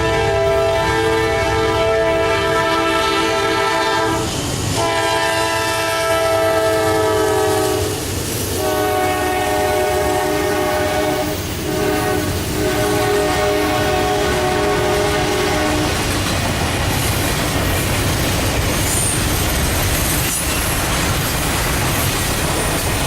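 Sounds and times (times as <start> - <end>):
locomotive air horn blasts: 0.0 - 8.0, 8.6 - 15.9.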